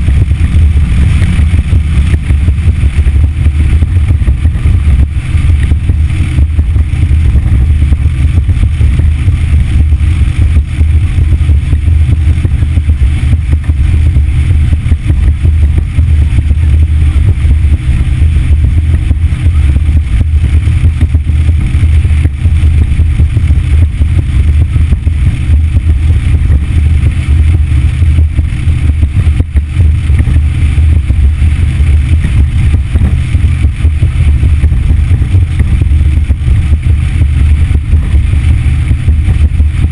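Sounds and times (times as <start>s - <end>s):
outboard motor droning: 0.0s - 39.9s.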